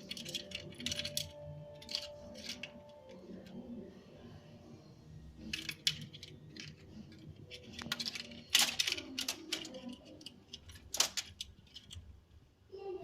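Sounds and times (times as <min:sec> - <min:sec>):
scratchy rattles: 0:00.0 - 0:03.4, 0:05.4 - 0:12.1.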